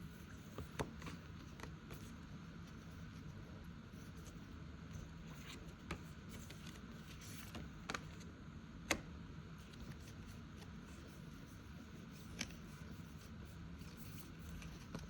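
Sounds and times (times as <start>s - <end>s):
paper envelopes rustling: 12.2s - 15.0s.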